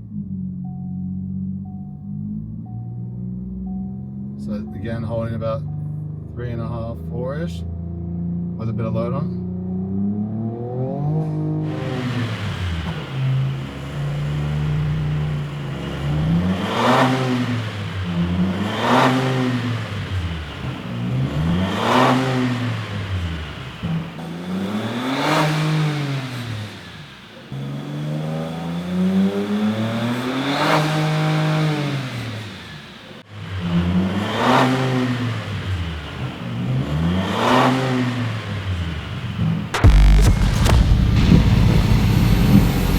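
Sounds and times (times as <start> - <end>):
truck engine revving: 9.4 - 42.9.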